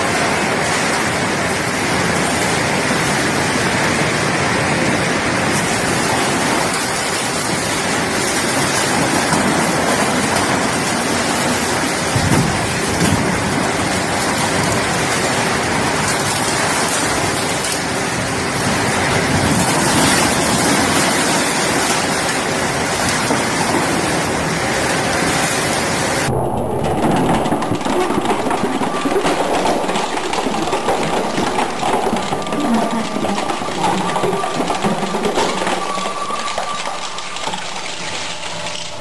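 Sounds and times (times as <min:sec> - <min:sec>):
shredder crunching plastic: 0:26.3 - 0:39.0.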